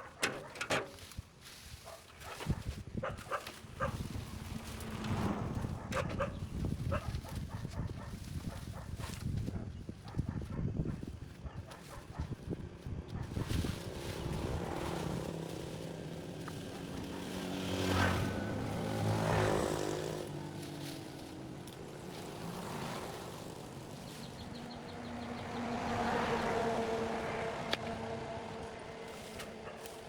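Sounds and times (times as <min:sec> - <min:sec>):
engine noise: 0:03.4 - 0:06.9, 0:12.0 - 0:30.0.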